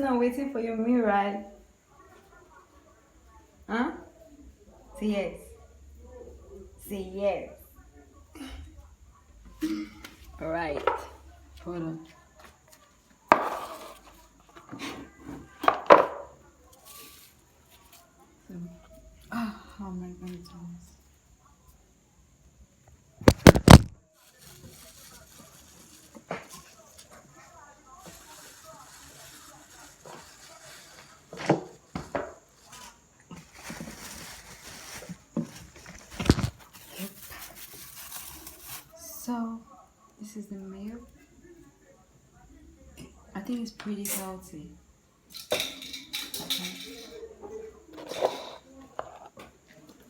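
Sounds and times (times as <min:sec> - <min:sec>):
dishes and utensils clattering: 0:13.3 - 0:16.3, 0:45.3 - 0:49.5
food bowl knocking and clattering: 0:15.6 - 0:16.3, 0:23.3 - 0:23.9.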